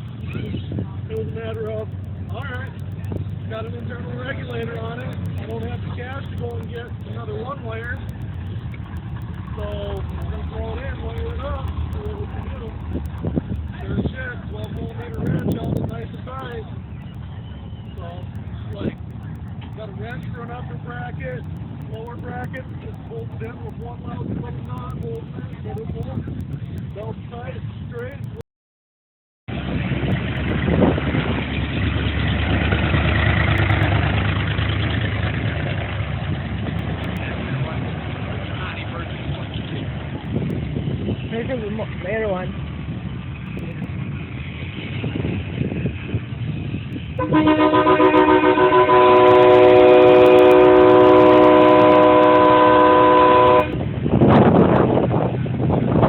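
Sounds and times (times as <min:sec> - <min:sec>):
car engine idling: 0:00.0 - 0:28.4, 0:29.9 - 0:55.2
vehicle horn chord: 0:47.2 - 0:53.8.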